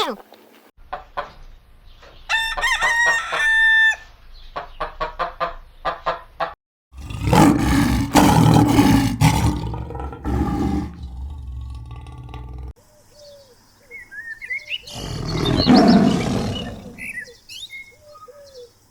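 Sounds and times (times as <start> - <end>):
rooster crowing: 2.3 - 4.0
big cat roaring: 7.0 - 12.8, 14.9 - 17.2.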